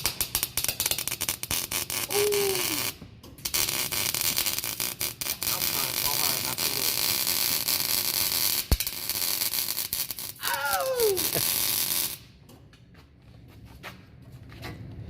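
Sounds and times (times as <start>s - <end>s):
welding arc crackling hiss: 0.0s - 12.2s
person yelling: 2.1s - 2.9s, 10.4s - 11.4s.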